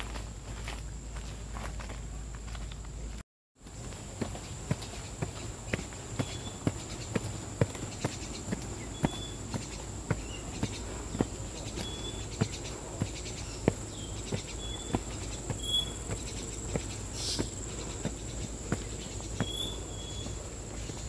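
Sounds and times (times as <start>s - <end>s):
footsteps walking: 0.0s - 21.0s
insects droning: 0.0s - 21.0s
short high insect chirps: 11.5s - 21.0s.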